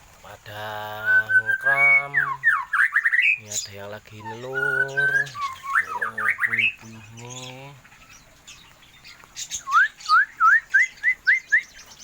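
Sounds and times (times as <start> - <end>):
small birds chirping: 0.0 - 12.0
bird whistling quick rising notes: 4.5 - 6.8, 9.6 - 12.0.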